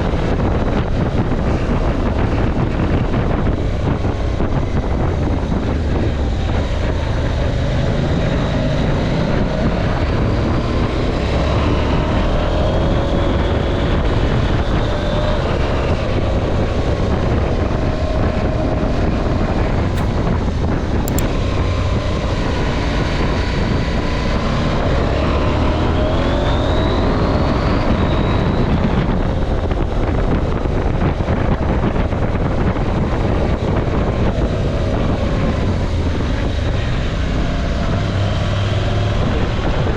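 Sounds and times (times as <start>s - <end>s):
wind on microphone: 0.0s - 39.9s
motorcycle engine revving: 20.0s - 20.2s, 21.1s - 21.3s.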